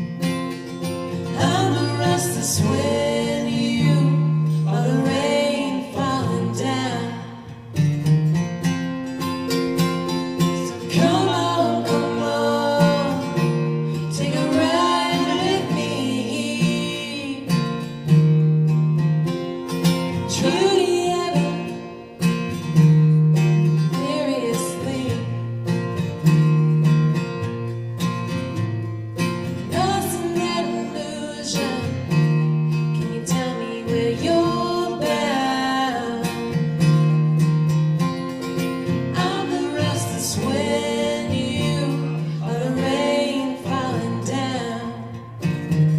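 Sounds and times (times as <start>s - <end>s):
acoustic guitar: 0.0s - 45.9s
person singing: 1.4s - 7.4s, 10.6s - 17.6s, 20.3s - 21.8s, 39.2s - 45.1s.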